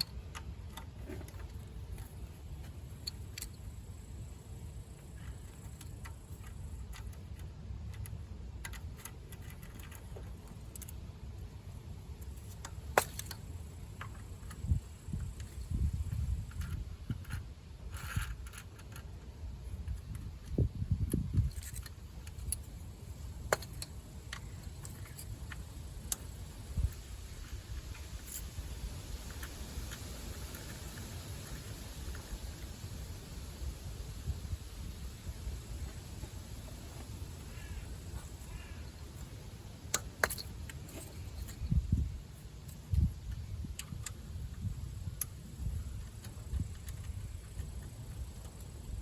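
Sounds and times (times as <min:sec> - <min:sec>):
tools clicking: 0:00.0 - 0:03.8, 0:05.1 - 0:11.0, 0:19.8 - 0:28.6, 0:39.1 - 0:42.0
low steady rumble: 0:00.0 - 0:49.0.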